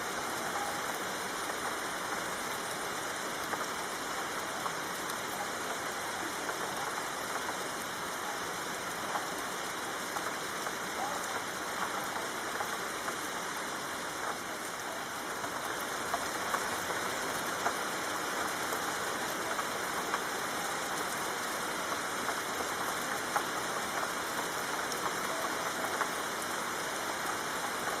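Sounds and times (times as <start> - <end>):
soft rain falling: 0.0 - 28.0
raindrop taps: 10.1 - 13.6, 14.2 - 26.5.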